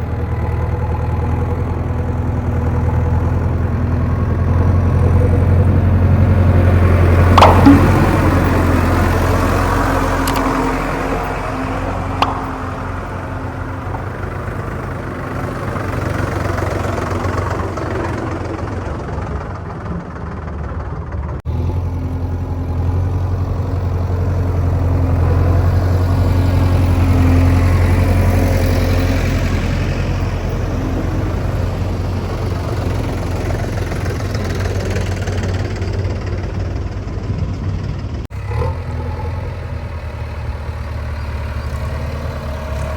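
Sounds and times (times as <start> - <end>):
diesel machinery engine running: 0.0 - 42.9
sharp click: 10.2 - 10.7.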